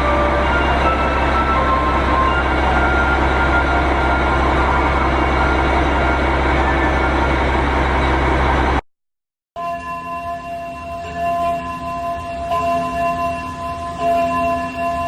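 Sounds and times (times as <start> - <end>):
constant low hum: 0.0 - 8.8
train rumbling on rails: 0.0 - 8.8.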